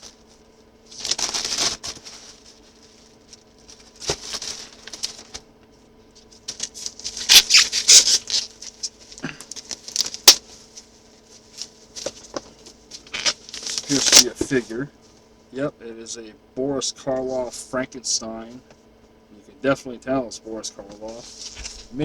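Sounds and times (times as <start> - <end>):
packaging rustling and crinkling: 0.0 - 15.2, 21.0 - 22.0.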